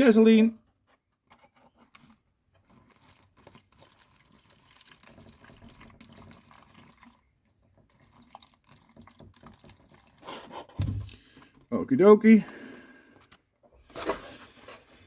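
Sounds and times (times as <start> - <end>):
fuel trickling into tank: 1.6 - 11.7.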